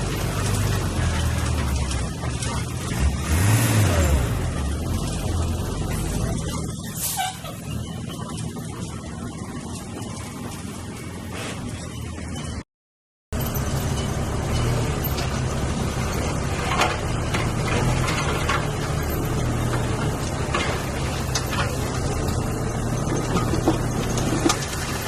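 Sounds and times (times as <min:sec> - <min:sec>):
heavy machinery diesel engine: 0:00.0 - 0:12.6, 0:13.4 - 0:25.0
short clanks and knocks: 0:13.4 - 0:25.0.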